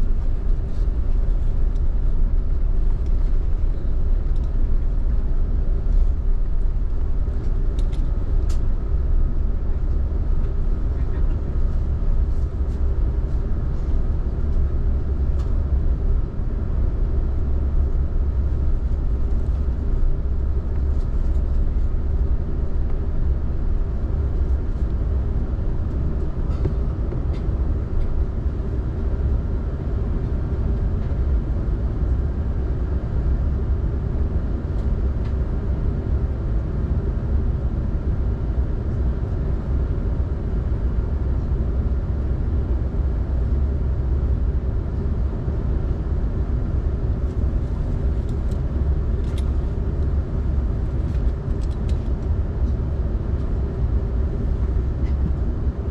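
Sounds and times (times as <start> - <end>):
aircraft cabin engine rumble: 0.0 - 55.9.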